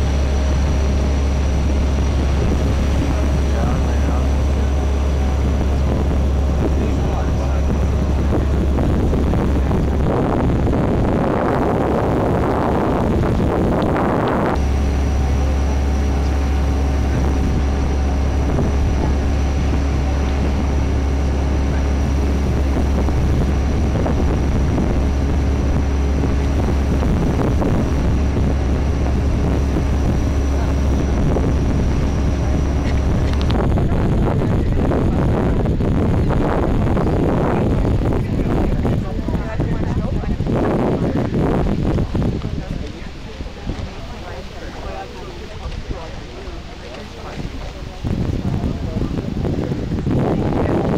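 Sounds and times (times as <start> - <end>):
boat engine droning: 0.0 - 50.9
rough noise: 0.0 - 50.9.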